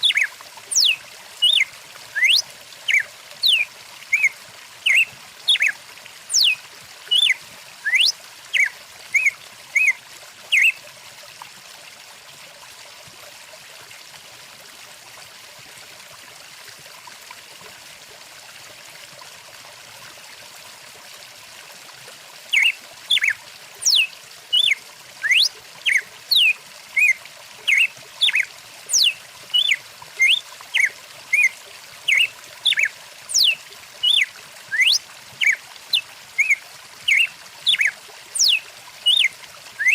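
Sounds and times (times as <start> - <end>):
songbird calling: 0.0 - 10.8, 22.5 - 31.5, 32.1 - 39.9
stream trickling: 0.0 - 39.9.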